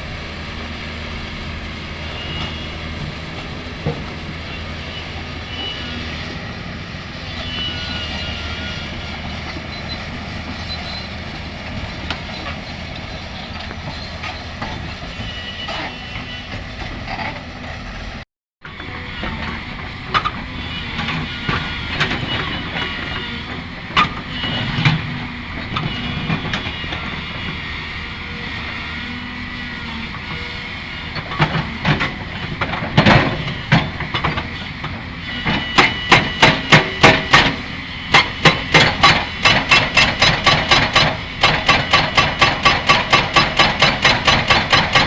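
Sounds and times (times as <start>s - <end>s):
excavator running: 0.0s - 45.0s
knocks and scraping: 7.1s - 17.0s
fast metallic clanking: 7.3s - 15.2s.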